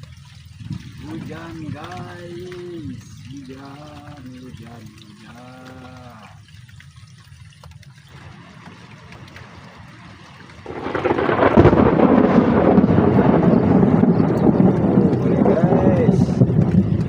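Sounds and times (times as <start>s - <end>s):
heavy rain: 0.0s - 6.4s, 8.1s - 17.0s
raindrops pattering near microphone: 0.0s - 17.0s.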